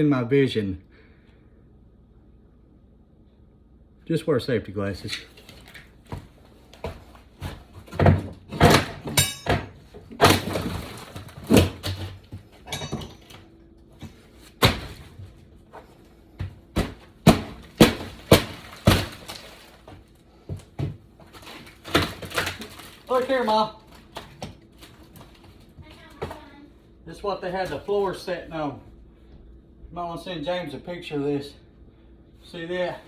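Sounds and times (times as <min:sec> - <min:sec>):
wood cracking: 0:16.8 - 0:20.2, 0:21.2 - 0:25.6.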